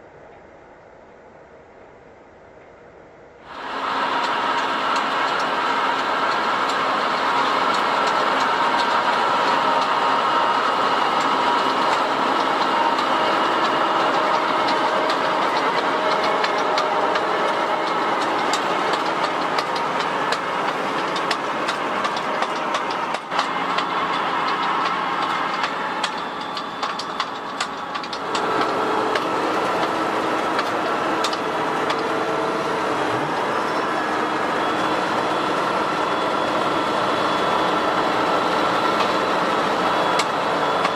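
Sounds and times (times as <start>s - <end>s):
tractor diesel engine under load: 3.4s - 40.9s
plough clicks and rattles: 3.6s - 40.9s.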